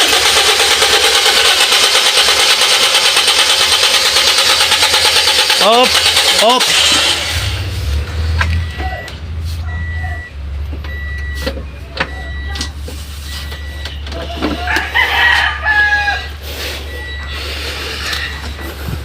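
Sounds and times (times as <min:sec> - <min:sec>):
car engine idling: 0:00.0 - 0:19.0
rooster crowing: 0:14.4 - 0:16.4.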